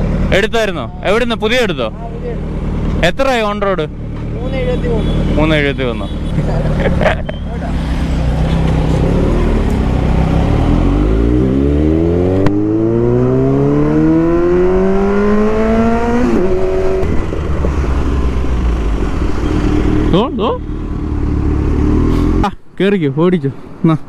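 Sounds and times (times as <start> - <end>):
motorcycle engine accelerating: 0.0 - 22.6.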